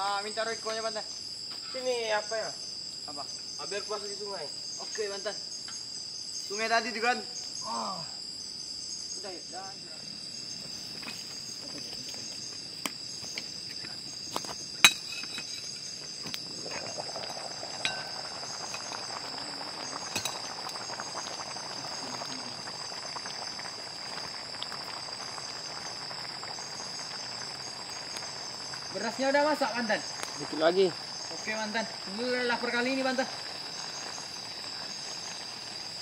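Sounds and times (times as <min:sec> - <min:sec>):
crickets chirring: 0:00.0 - 0:36.0
soft steady hiss: 0:00.0 - 0:36.0
metallic clinks of cooking pots: 0:14.8 - 0:15.9, 0:17.8 - 0:18.9, 0:20.1 - 0:20.8.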